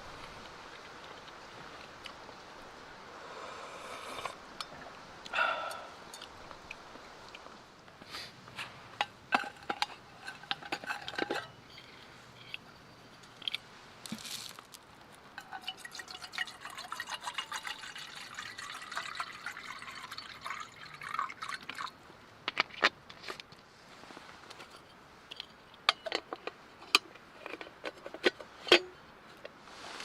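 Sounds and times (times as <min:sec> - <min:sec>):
liquid pouring into a cup: 0:15.4 - 0:21.9.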